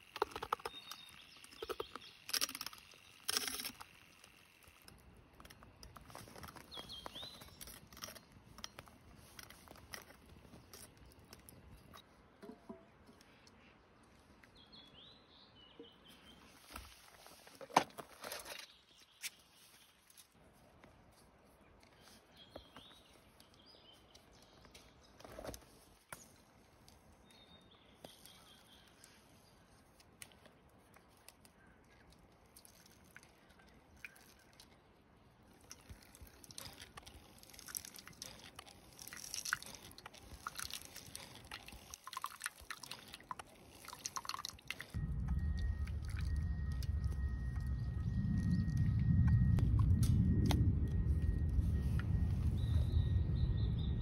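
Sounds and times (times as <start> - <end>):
small bird chirping: 0.0 - 4.7, 6.2 - 8.4, 52.0 - 54.0.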